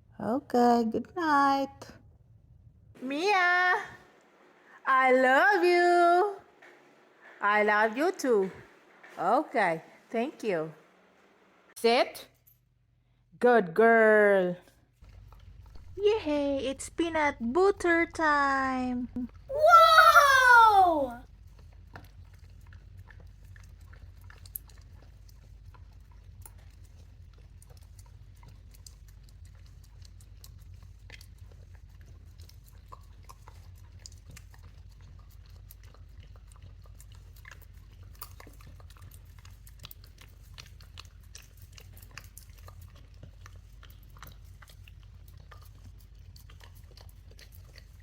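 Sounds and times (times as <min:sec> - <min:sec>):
dog licking and chewing: 0:14.6 - 0:16.0, 0:21.2 - 0:48.0.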